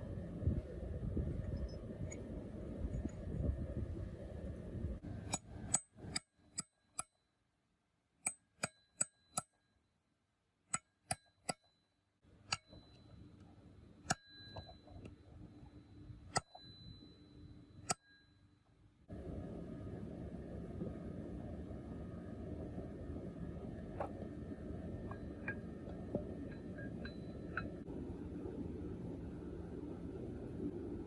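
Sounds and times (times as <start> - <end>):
hammer striking metal: 12.5 - 13.0.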